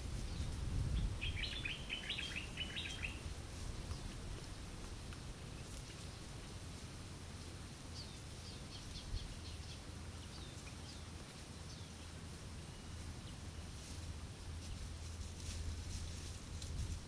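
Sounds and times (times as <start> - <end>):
faint low background hum: 0.0 - 17.0
bird chirping: 1.0 - 3.2.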